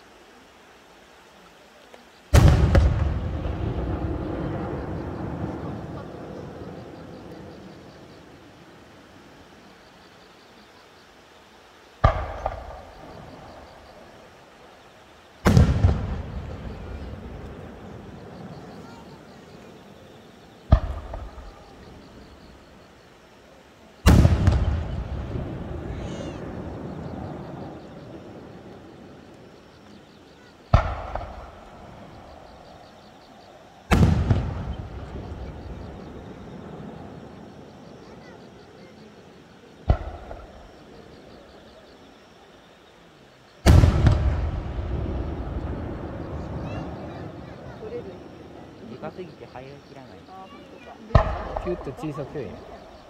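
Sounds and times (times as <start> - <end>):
echoing crack: 2.3 - 7.5, 12.0 - 13.9, 15.4 - 18.5, 20.7 - 22.0, 24.0 - 29.4, 30.7 - 32.4, 33.9 - 37.2, 39.8 - 40.8, 43.6 - 47.6, 51.1 - 53.0
firework bursts: 2.3 - 8.8, 12.0 - 14.4, 15.4 - 23.0, 24.0 - 42.0, 43.6 - 53.0.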